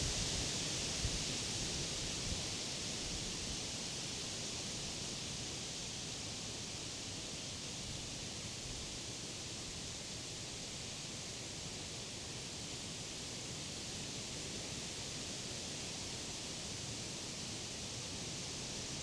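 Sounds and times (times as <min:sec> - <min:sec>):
wind rustling leaves: 0:00.0 - 0:03.7.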